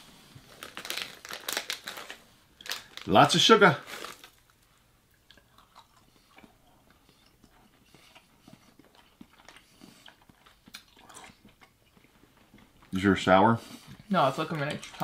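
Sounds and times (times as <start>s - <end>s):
faint chewing with mouth clicks: 4.4s - 15.0s.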